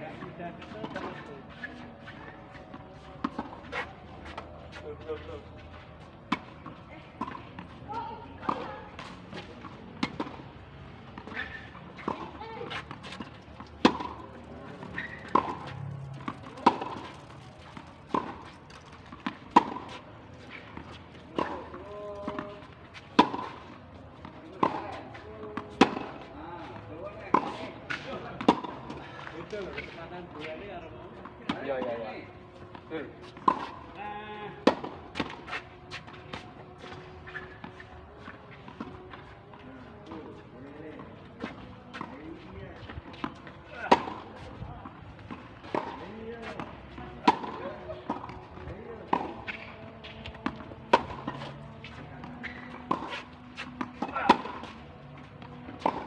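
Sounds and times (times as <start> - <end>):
tennis ball bouncing: 2.7 - 4.4, 11.1 - 26.3, 32.6 - 33.9, 34.6 - 37.1, 42.8 - 56.0
tennis racket hitting ball: 11.2 - 21.7, 49.0 - 56.0.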